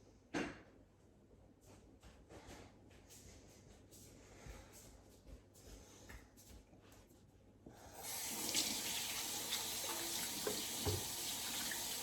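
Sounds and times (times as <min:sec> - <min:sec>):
water running into sink: 0:08.0 - 0:12.0
kitchen tap turned on: 0:08.1 - 0:12.0.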